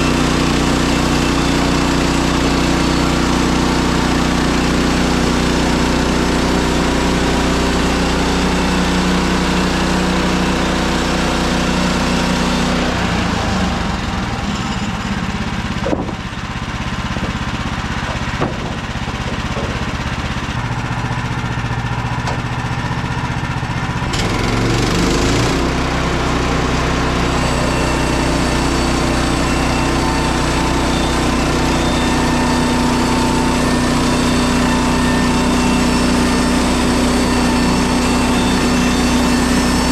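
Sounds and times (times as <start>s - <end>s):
sawmill gas engine running: 0.0s - 39.9s
sharp knocks: 15.8s - 16.2s, 18.1s - 20.4s.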